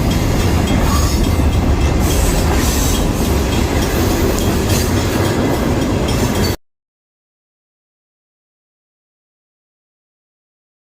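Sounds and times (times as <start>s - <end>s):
freight train rumbling: 0.0s - 6.6s
wheels clacking over rail joints: 0.0s - 6.6s.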